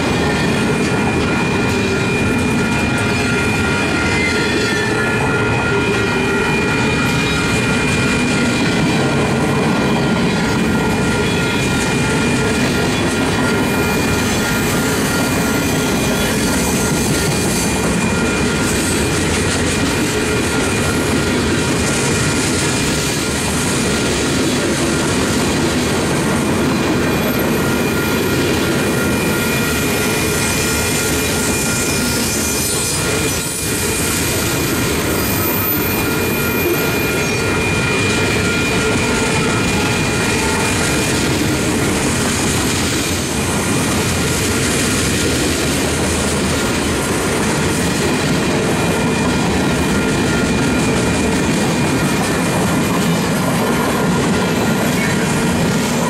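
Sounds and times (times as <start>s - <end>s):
train wheels rumbling on rail: 0.0s - 56.0s
wheel squeal: 0.1s - 9.2s, 9.8s - 24.1s, 27.0s - 43.1s.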